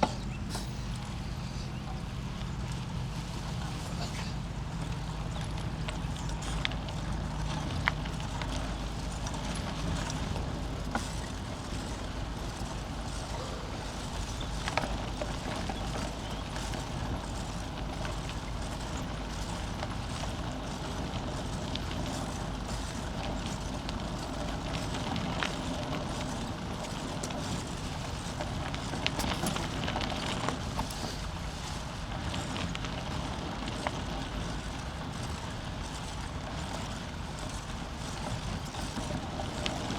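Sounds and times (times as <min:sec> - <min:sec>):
bicycle tyre rumble: 0:00.0 - 0:39.9
bike clicks and rattles: 0:00.0 - 0:39.9.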